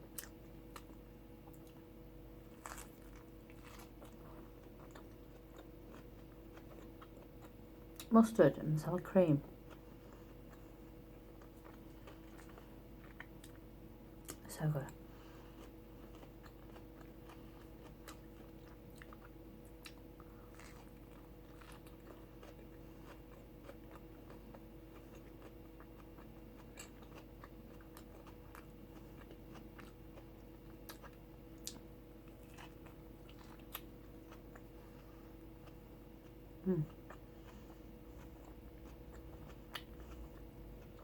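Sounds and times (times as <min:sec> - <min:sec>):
steady low hum: 0:00.0 - 0:41.0
person chewing: 0:00.1 - 0:08.1, 0:09.6 - 0:41.0.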